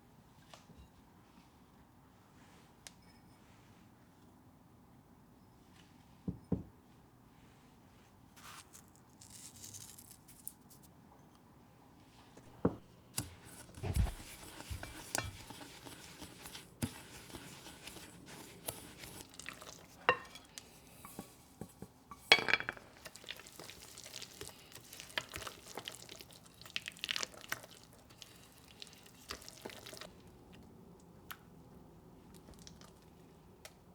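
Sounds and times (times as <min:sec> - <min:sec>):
kitchenware clinking and knocking: 0:20.1 - 0:20.5, 0:21.1 - 0:23.0.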